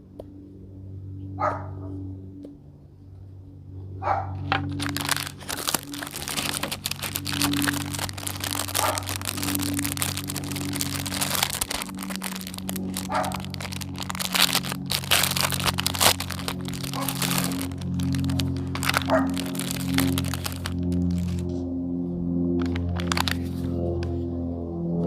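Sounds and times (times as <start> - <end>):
music with low sustained notes: 0.0 - 25.0
plastic toys crackling and clicking: 4.5 - 21.5, 22.6 - 23.5.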